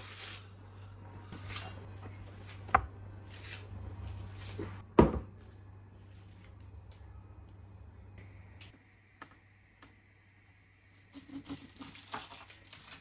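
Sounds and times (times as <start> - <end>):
steady low hum: 0.2 - 11.8.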